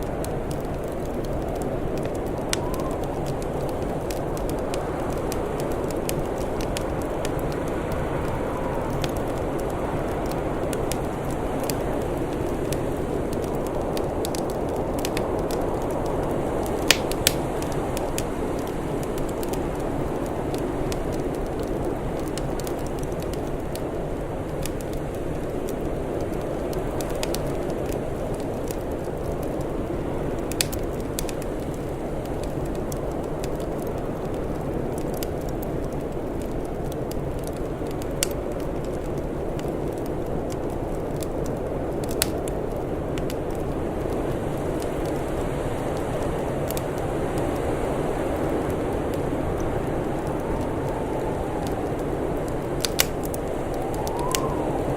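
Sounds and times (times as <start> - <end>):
wood fire crackling: 0.0 - 54.9
sharp fire pops: 0.1 - 45.3, 46.0 - 54.9
low rushing noise: 49.2 - 54.9.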